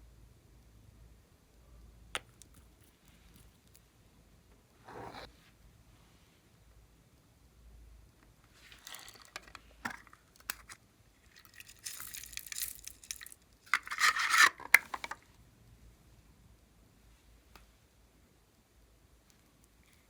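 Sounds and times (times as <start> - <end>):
slime rubbing and scraping: 4.8 - 5.3.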